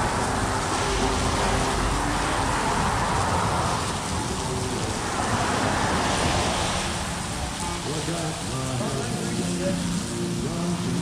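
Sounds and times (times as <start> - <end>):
rain hiss: 0.0 - 11.0.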